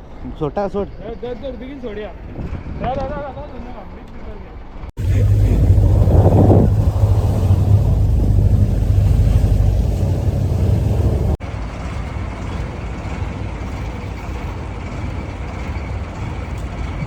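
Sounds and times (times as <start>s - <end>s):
boat motor rumbling: 5.0s - 13.3s.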